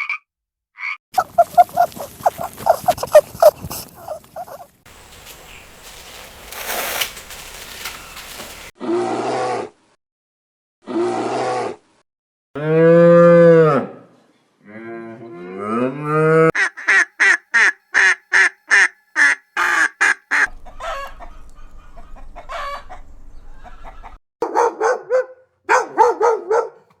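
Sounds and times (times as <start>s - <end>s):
poultry calls: 1.2s - 8.7s, 16.6s - 24.2s.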